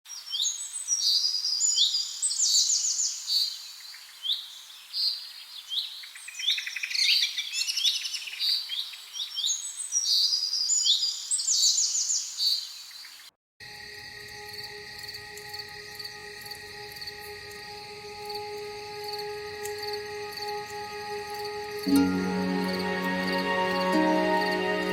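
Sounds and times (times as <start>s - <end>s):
songbirds singing: 0.1s - 13.3s
drone of held tones: 13.6s - 24.9s.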